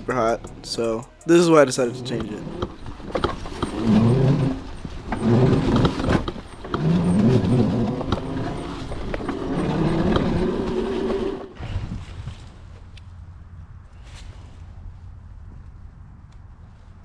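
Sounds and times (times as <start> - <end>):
electric motor whining: 2.2 - 11.5
rumbling and knocks from riding: 2.2 - 12.4.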